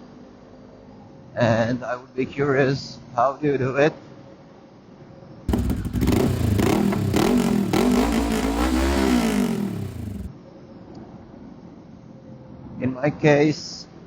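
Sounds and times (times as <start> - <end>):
motorcycle engine revving: 5.5 - 10.3.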